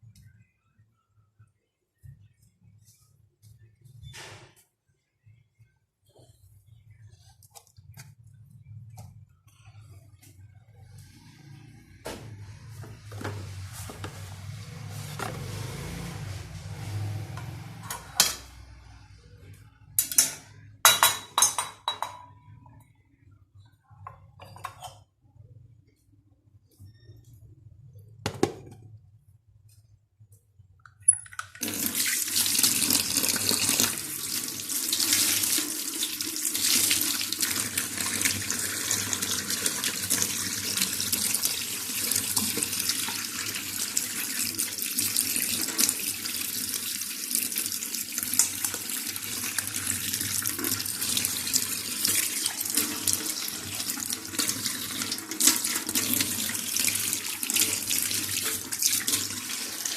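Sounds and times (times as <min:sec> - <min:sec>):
tap water running into sink: 0:31.6 - 0:59.9.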